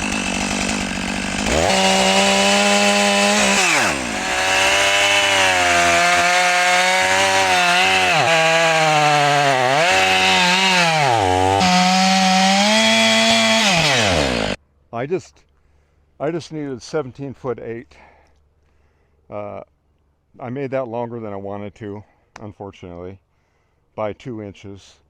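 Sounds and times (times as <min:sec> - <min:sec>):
chainsaw cutting through log: 0:00.0 - 0:14.6.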